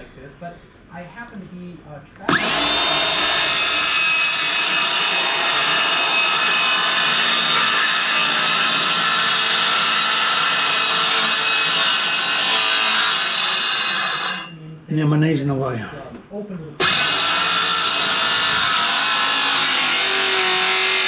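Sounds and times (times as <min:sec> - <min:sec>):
power tool cutting wood: 0:02.3 - 0:14.5, 0:16.8 - 0:21.0.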